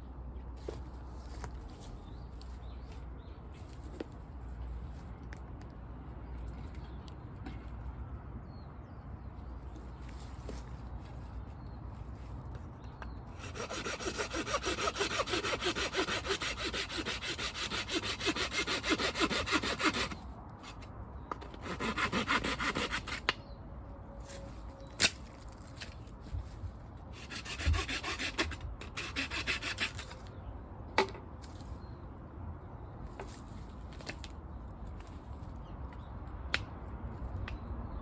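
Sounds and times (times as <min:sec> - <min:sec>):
hand saw cutting wood: 0:13.4 - 0:20.8, 0:21.5 - 0:23.3, 0:27.2 - 0:30.2.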